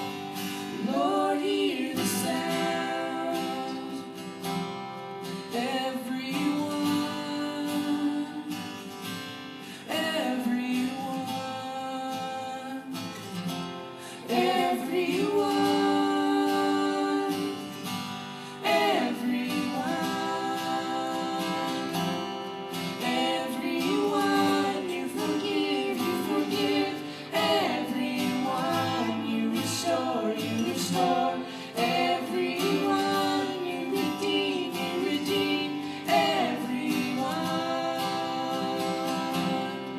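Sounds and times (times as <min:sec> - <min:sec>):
children singing: 0:00.0 - 0:04.0, 0:14.2 - 0:17.9, 0:18.6 - 0:39.9
acoustic guitar: 0:00.0 - 0:39.9.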